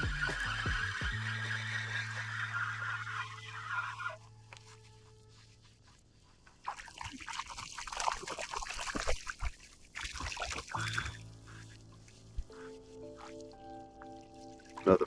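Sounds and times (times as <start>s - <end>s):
faint background music: 10.8s - 15.0s.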